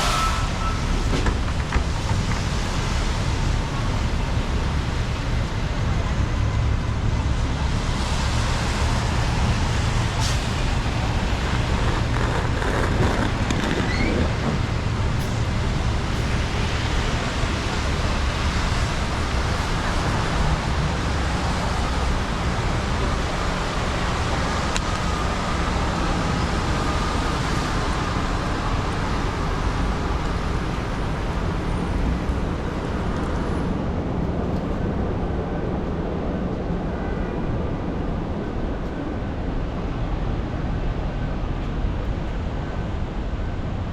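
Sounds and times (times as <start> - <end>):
city street traffic: 0.0 - 43.9.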